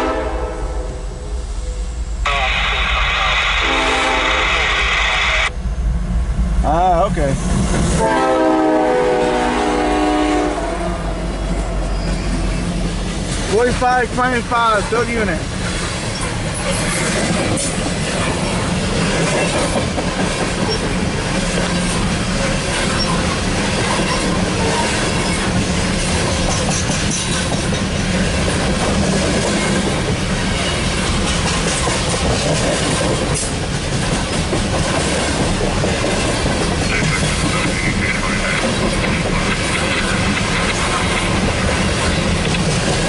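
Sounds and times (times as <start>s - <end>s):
freight train rumbling past: 0.0s - 43.0s
steel wheels clattering on rails: 11.5s - 43.0s.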